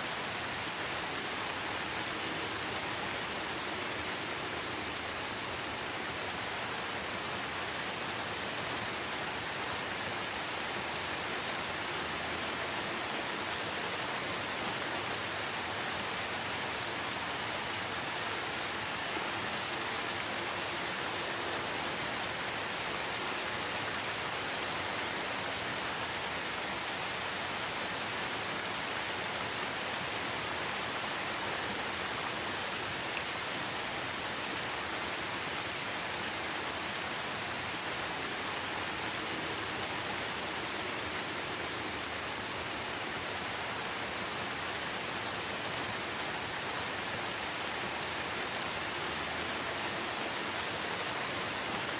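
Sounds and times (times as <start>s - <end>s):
steady rain falling: 0.0s - 51.9s.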